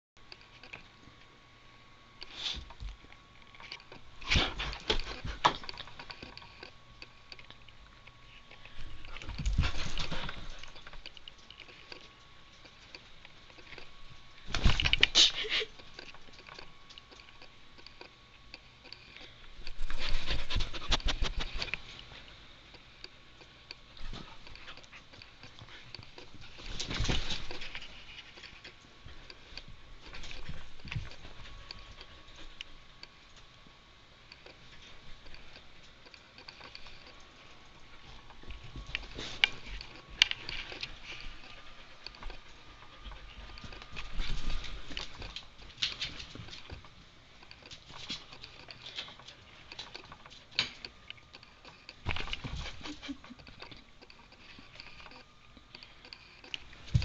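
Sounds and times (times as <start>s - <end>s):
dog panting: 37.9s - 45.4s.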